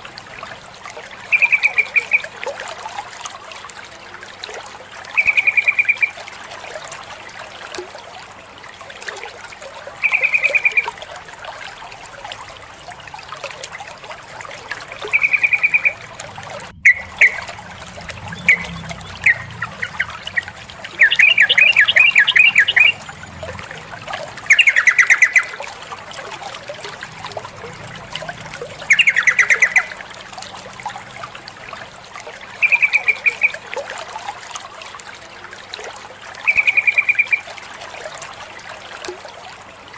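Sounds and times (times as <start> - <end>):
trickle of water: 0.0 - 39.9
bird trilled calls: 1.3 - 2.4, 5.2 - 6.2, 10.0 - 11.0, 14.6 - 25.7, 28.2 - 30.5, 32.5 - 33.7, 36.4 - 37.5.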